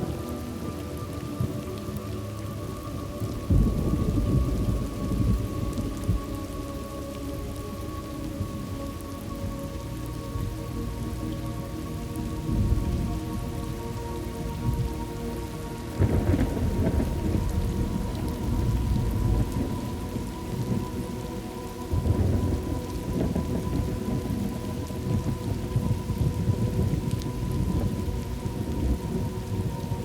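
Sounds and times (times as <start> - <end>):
steady rain: 0.0 - 30.0
rolling thunder: 2.9 - 6.6, 15.9 - 21.2, 21.9 - 30.0.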